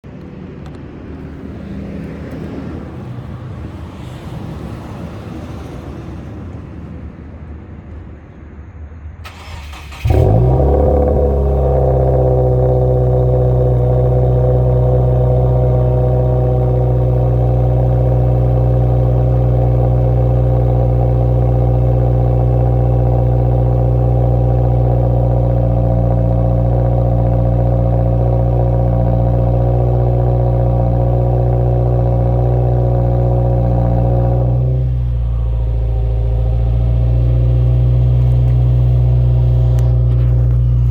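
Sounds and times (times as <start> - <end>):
car engine idling: 9.2 - 40.9.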